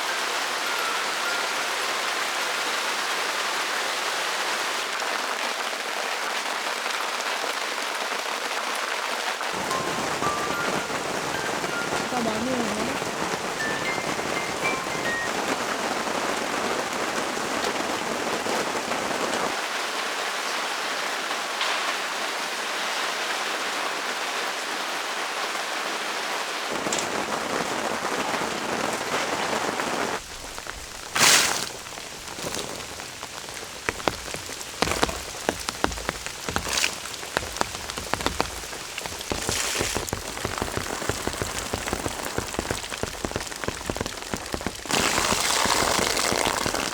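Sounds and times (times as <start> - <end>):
raindrops ticking on a surface: 0.0 - 2.6, 4.9 - 23.4, 26.7 - 46.9
heavy rain hissing: 0.0 - 46.9.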